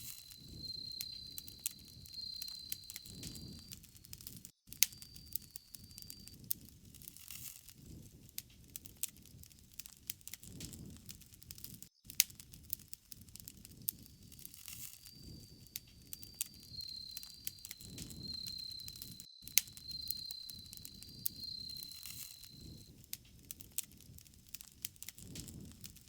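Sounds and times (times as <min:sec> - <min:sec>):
low rumble of flames: 0:00.0 - 0:03.8, 0:07.8 - 0:26.0
cricket trilling: 0:00.0 - 0:04.0, 0:04.9 - 0:06.4, 0:13.9 - 0:22.9
campfire crackling: 0:00.0 - 0:04.1, 0:08.8 - 0:26.0.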